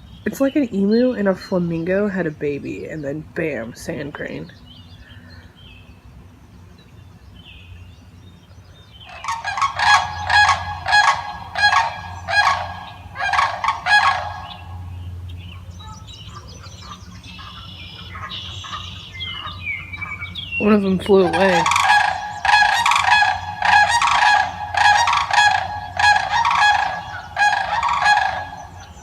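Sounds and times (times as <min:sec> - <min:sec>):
cranes calling: 0:09.0 - 0:29.0.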